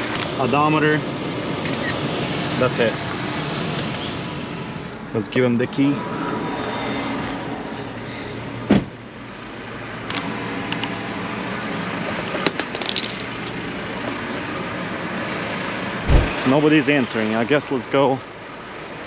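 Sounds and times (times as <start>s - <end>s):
vehicle engine idling: 7.8s - 19.0s
sharp thump: 16.0s - 16.4s.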